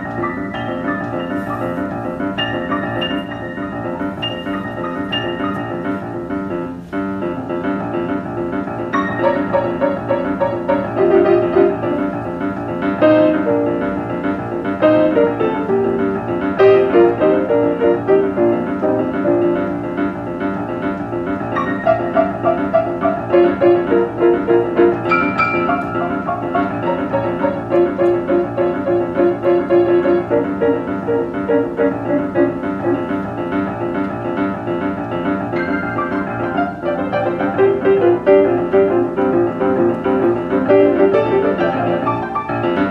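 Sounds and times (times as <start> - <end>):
jazz piano improvisation: 0.0 - 42.9.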